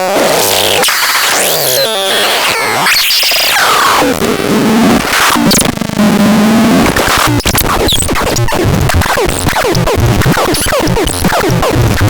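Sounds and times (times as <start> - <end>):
loud scratchy sweep: 6.9 - 12.0.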